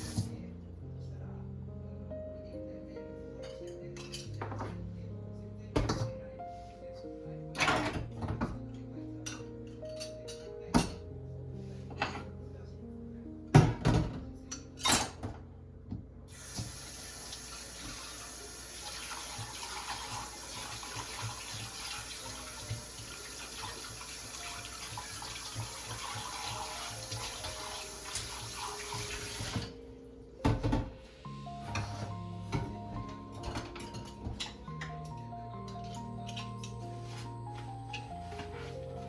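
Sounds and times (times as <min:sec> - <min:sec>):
tap water running into sink: 0:00.0 - 0:00.3, 0:16.3 - 0:29.7.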